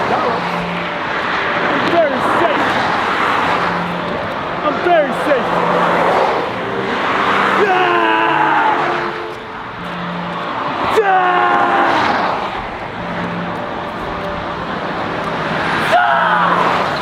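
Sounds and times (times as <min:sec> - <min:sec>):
road traffic noise: 0:00.0 - 0:17.0
person crying out: 0:07.5 - 0:09.2, 0:11.0 - 0:12.3, 0:15.8 - 0:16.8.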